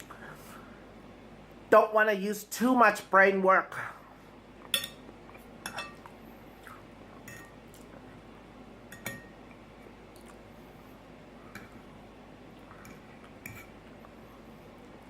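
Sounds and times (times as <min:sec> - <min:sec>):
cutlery clinking on a plate: 0:04.7 - 0:05.0, 0:05.6 - 0:06.0, 0:07.3 - 0:07.6, 0:08.9 - 0:09.4.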